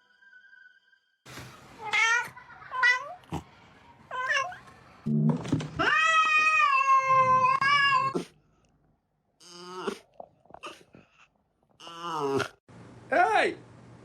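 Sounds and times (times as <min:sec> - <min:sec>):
cat meowing: 0:01.8 - 0:03.2, 0:05.8 - 0:08.2.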